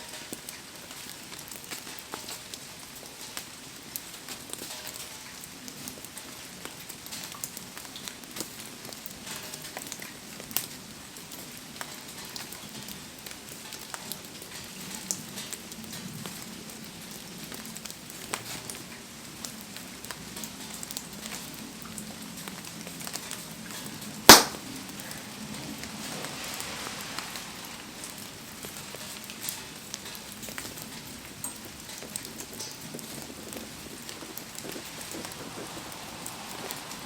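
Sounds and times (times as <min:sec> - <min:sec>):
bonfire crackling and popping: 0:00.0 - 0:37.0
rain patter: 0:00.0 - 0:37.0
loud sharp crack: 0:24.3 - 0:24.7.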